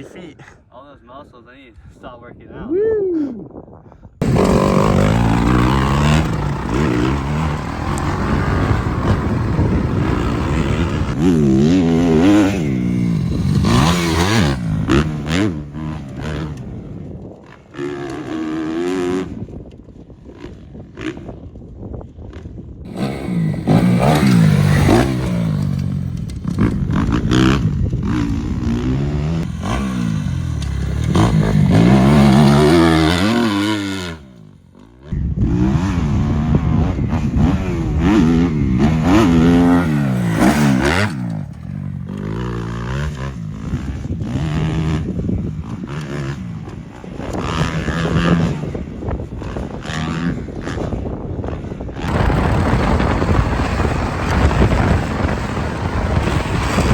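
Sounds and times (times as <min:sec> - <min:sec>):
dirt bike engine revving: 0:04.2 - 0:16.9, 0:22.9 - 0:56.9.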